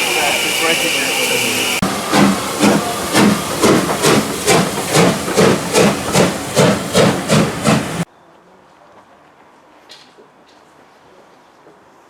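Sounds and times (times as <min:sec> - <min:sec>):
steam locomotive chuffing: 0:00.0 - 0:08.1.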